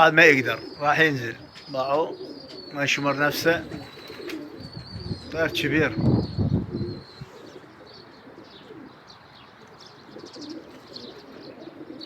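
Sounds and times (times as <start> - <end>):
pigeons cooing: 0.0 - 12.0
small birds chirping: 0.0 - 12.0.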